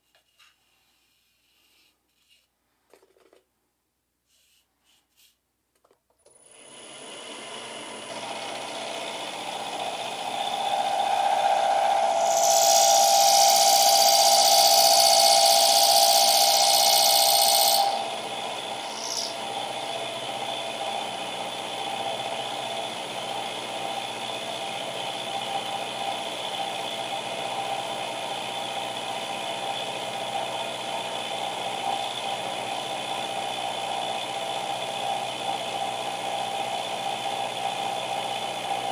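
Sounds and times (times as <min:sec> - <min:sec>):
milling machine motor running: 0:06.5 - 0:38.9
cutter hissing on steel: 0:10.5 - 0:19.6.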